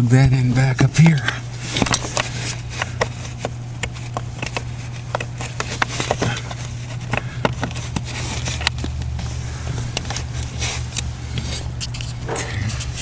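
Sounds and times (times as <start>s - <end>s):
steady low hum: 0.0s - 13.0s
connector and plastic parts clicking: 1.1s - 9.1s.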